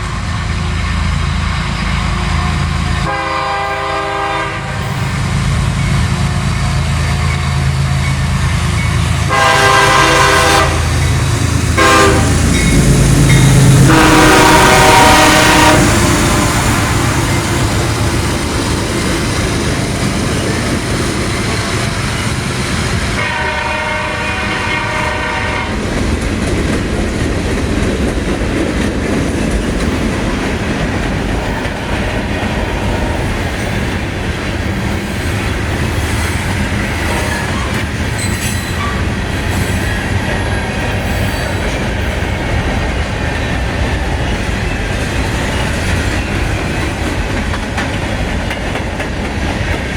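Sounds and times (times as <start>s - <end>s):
train horn chord: 2.0s - 5.1s, 9.3s - 11.1s, 11.8s - 12.8s, 13.4s - 16.6s, 23.2s - 25.8s
train wheels clacking on rails: 4.8s - 49.9s.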